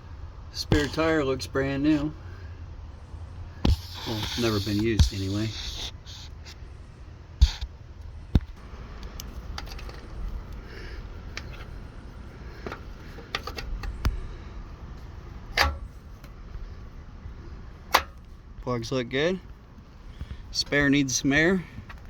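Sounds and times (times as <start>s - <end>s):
low steady rumble: 0.0s - 22.0s
sharp clicks and knocks: 15.5s - 16.4s.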